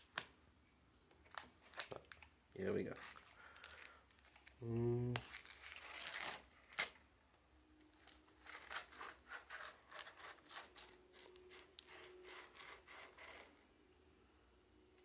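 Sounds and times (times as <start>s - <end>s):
knife cutting cardboard and tape: 5.2s - 7.0s, 8.0s - 13.6s.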